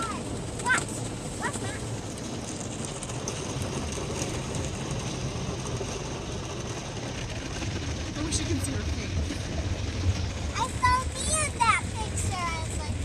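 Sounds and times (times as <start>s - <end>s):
car wash rumble: 0.0s - 13.0s.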